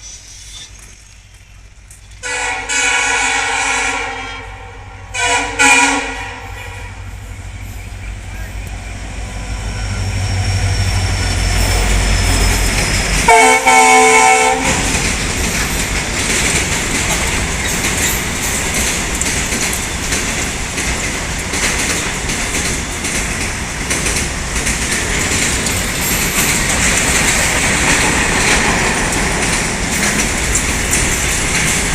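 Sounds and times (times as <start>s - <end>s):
diesel locomotive engine rumbling: 0.0s - 31.9s
train horn blast: 2.2s - 7.2s, 13.2s - 15.0s
train wheels clickety-clack: 5.1s - 31.9s.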